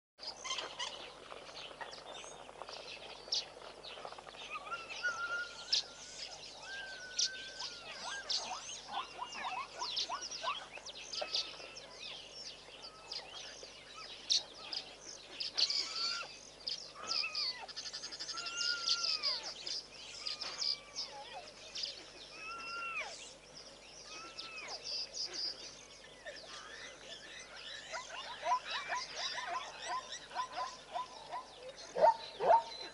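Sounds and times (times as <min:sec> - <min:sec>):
birds whistling and trilling: 0:00.2 - 0:32.9.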